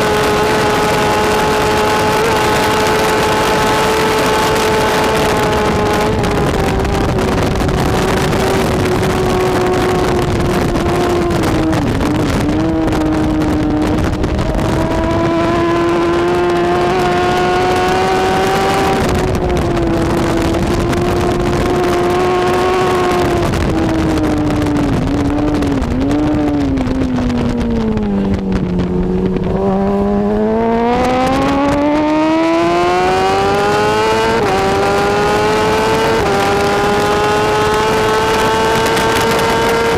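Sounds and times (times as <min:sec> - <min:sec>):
motorcycle engine revving high: 0:00.0 - 0:39.9.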